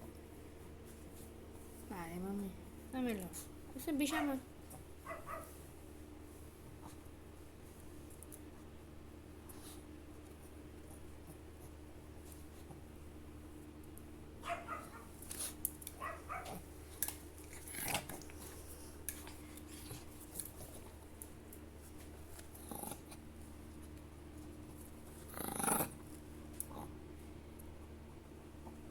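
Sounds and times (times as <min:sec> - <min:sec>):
steady low hum: 0:00.0 - 0:28.9
small dog growling: 0:14.5 - 0:16.7, 0:17.4 - 0:18.5, 0:22.5 - 0:23.2, 0:25.2 - 0:27.0.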